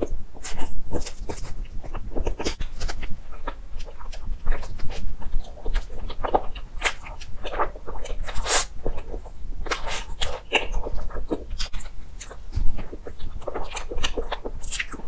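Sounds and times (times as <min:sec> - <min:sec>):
person chewing sponge cake: 0:00.0 - 0:15.0.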